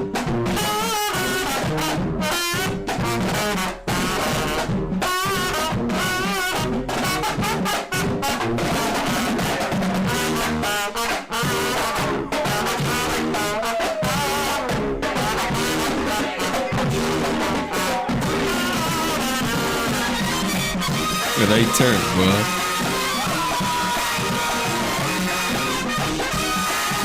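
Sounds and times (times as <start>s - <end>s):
drums: 0.0s - 27.0s
horns playing melody: 0.6s - 9.4s, 14.3s - 23.2s.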